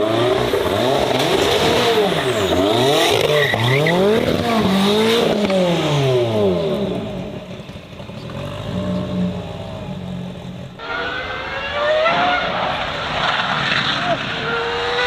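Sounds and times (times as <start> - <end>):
racing car engine accelerating: 0.0 - 7.4.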